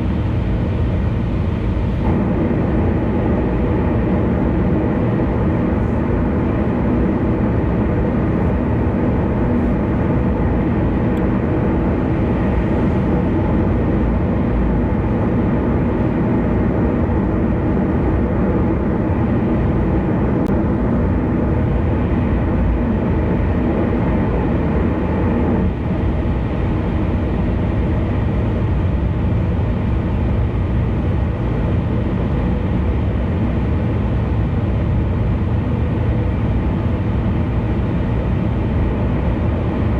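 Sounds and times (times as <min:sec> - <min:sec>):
car road noise: 0:00.0 - 0:39.9.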